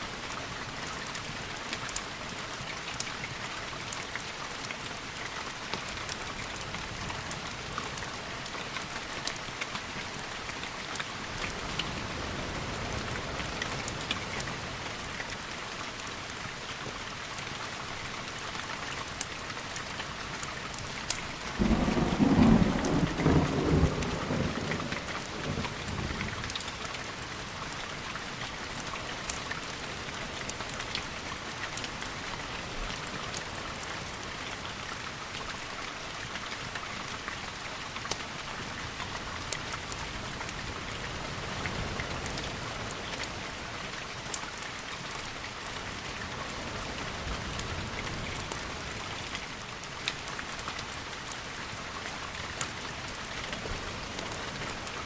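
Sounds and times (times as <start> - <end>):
steady rain: 0.0 - 55.0
thunder rumbling: 21.6 - 26.3.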